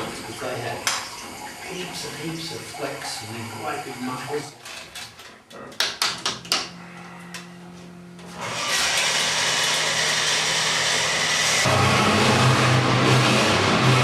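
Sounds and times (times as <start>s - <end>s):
drag engine running on dyno: 8.2s - 14.0s.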